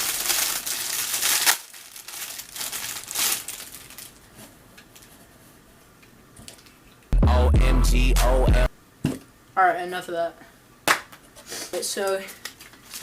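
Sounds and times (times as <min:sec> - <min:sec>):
crinkly packaging being unwrapped: 0:00.0 - 0:05.1, 0:12.3 - 0:13.0.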